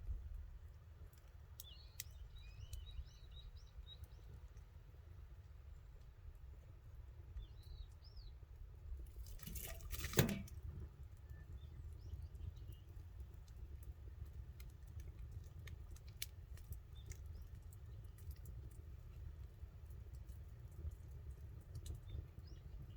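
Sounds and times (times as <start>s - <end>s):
campfire crackling: 9.0s - 22.9s.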